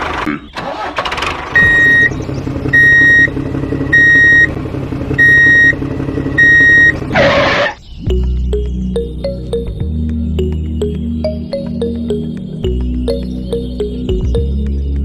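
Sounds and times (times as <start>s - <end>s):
small tractor motor running: 0.0s - 7.8s
high electronic beep: 1.6s - 2.1s, 2.8s - 3.3s, 3.9s - 4.5s, 5.2s - 5.8s, 6.4s - 7.8s
music: 7.8s - 15.0s.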